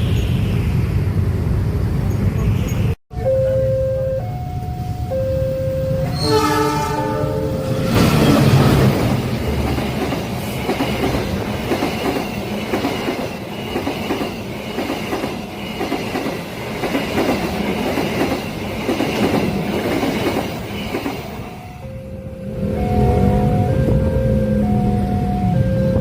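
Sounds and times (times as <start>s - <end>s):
train wheels clattering over rails: 7.9s - 21.4s.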